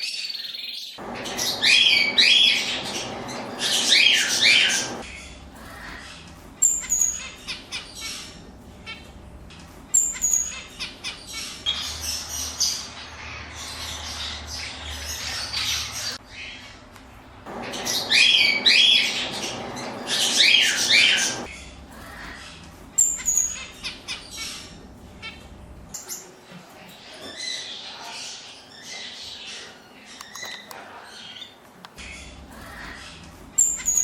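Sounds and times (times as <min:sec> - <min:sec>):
birds chirping: 0:00.0 - 0:34.0
harsh squawking calls: 0:01.0 - 0:09.0, 0:17.5 - 0:25.4.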